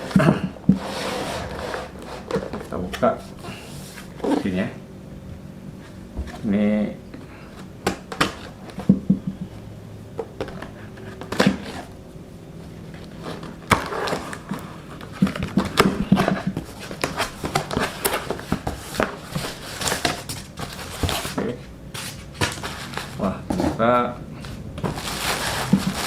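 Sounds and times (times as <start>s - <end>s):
cardboard box being opened: 10.3s - 11.9s, 12.8s - 23.8s, 24.8s - 26.0s.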